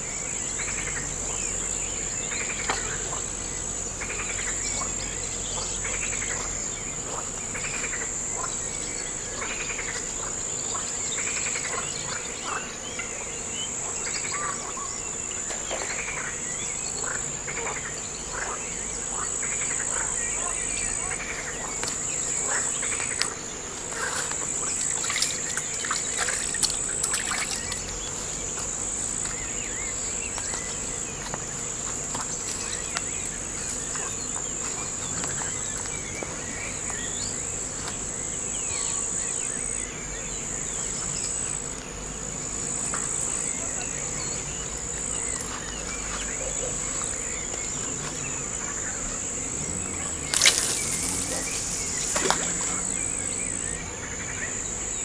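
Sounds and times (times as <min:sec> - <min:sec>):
crickets chirping chorus: 0:00.0 - 0:55.0
faint scattered chirps: 0:23.9 - 0:34.0, 0:45.0 - 0:53.8.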